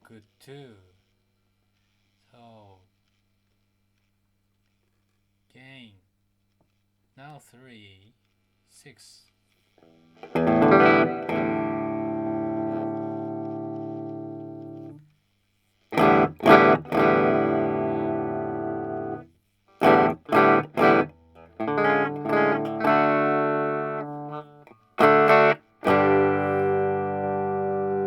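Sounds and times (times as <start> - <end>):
electric guitar chords: 9.8 - 15.0, 15.9 - 28.0.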